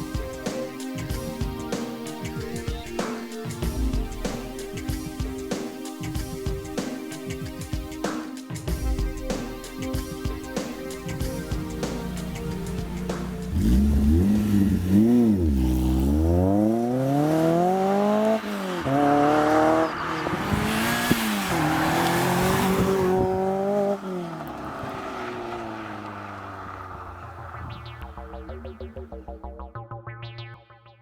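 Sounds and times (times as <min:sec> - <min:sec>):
car engine revving hard: 0:11.6 - 0:27.8.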